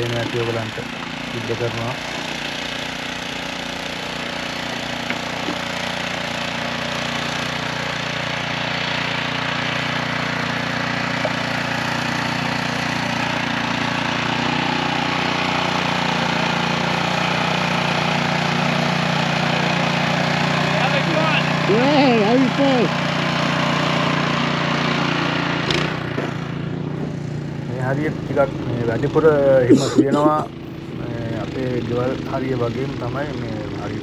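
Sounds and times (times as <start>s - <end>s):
machinery engine humming: 0.0s - 7.2s, 26.9s - 34.0s.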